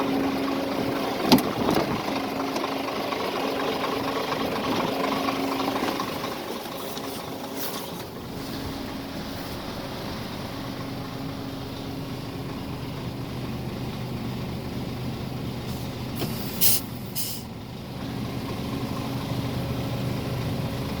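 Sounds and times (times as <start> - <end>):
diesel truck engine idling: 0.0 - 21.0
air brake hisses: 15.7 - 17.5.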